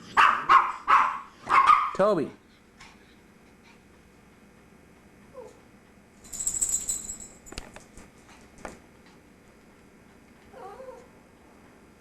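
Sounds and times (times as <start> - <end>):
collar tags jingling: 6.2 - 7.5.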